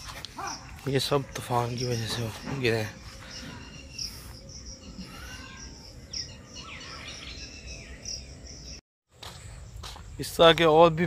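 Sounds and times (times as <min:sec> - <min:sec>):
gliding whistled bird calls: 0:00.5 - 0:08.8.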